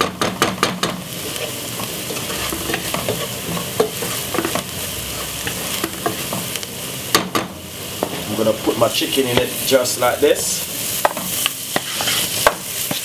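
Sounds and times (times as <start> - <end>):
food sizzling in a pot: 0.0 - 13.0
wooden spoon scraping a pot: 1.2 - 6.4, 11.7 - 13.0.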